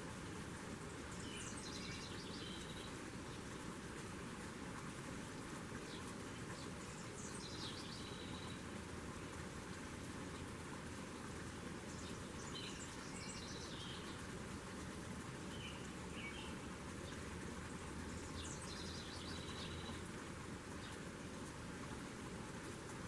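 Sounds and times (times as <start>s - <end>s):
outdoor background hiss: 0.0s - 23.0s
small birds chirping: 1.1s - 3.0s, 5.9s - 8.6s, 11.9s - 14.3s, 15.5s - 20.1s.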